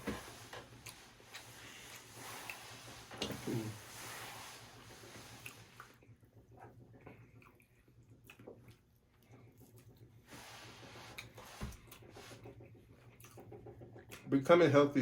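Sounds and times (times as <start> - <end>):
quiet chewing: 0.5 - 14.3.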